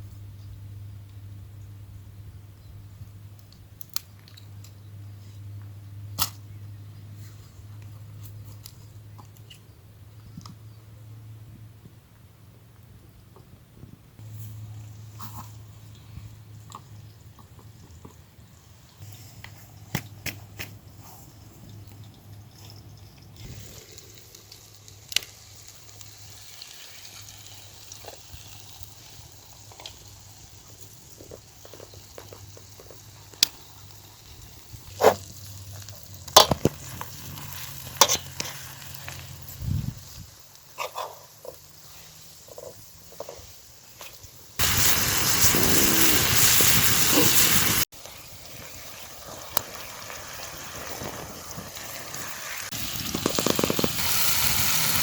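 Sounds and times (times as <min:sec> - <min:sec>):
loud frying sizzle: 0:19.9 - 0:55.0.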